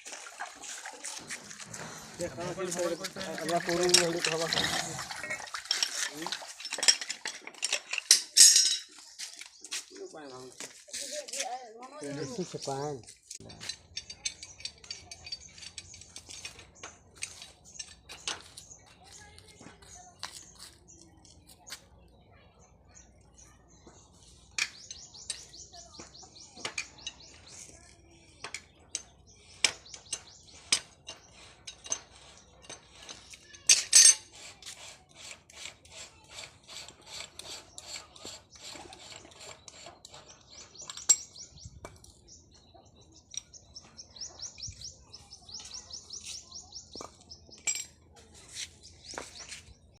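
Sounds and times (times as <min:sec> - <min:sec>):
metallic clinks on hand pump: 0:01.6 - 0:09.0, 0:13.3 - 0:18.4, 0:28.4 - 0:42.1.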